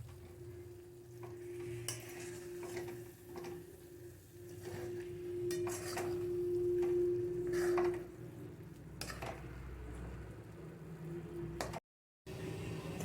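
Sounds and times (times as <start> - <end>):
metal spoon scraping a pan: 1.4 - 8.3, 9.0 - 9.6.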